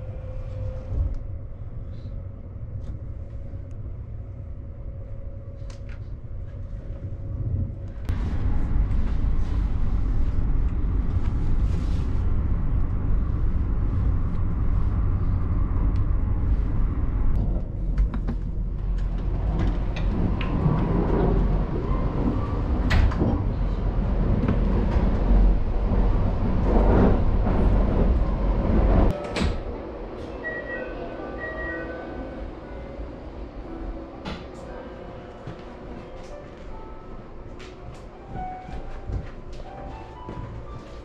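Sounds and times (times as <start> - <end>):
train running rumble: 0.0 - 41.0.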